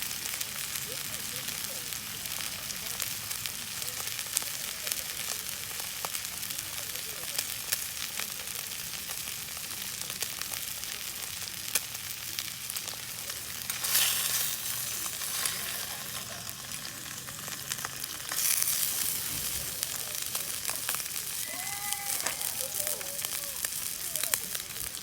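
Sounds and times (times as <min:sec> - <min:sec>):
steak sizzling over campfire: 0:00.0 - 0:25.0
sharp pops: 0:12.8 - 0:23.9.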